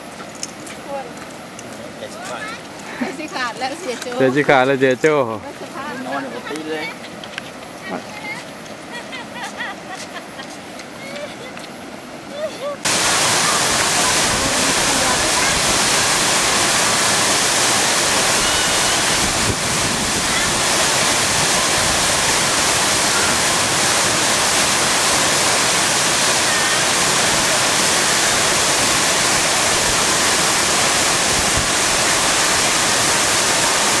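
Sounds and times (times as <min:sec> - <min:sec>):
waterfall rushing: 0:12.8 - 0:34.0.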